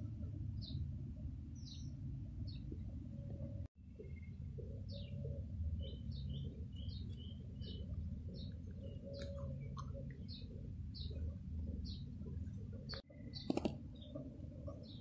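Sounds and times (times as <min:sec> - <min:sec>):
low steady hum: 0:00.0 - 0:15.0
small bird chirping: 0:04.0 - 0:15.0.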